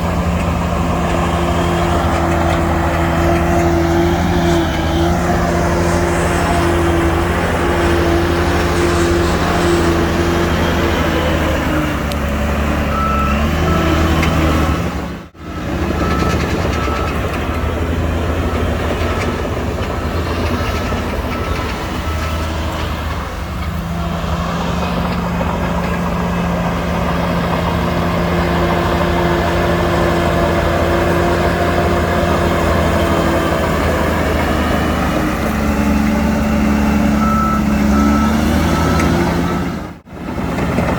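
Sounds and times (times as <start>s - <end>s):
heavy diesel machinery engine: 0.0s - 40.9s
reversing alarm beeping: 12.8s - 23.3s, 35.2s - 40.0s.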